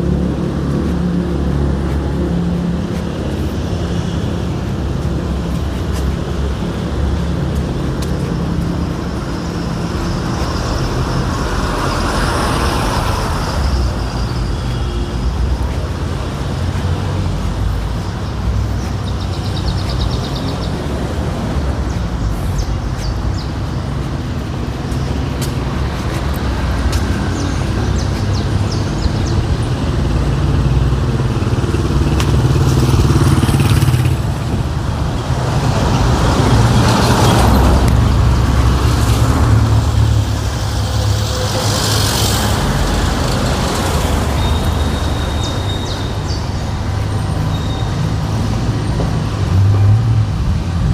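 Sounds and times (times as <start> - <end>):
vehicle engines passing: 0.0 - 50.9.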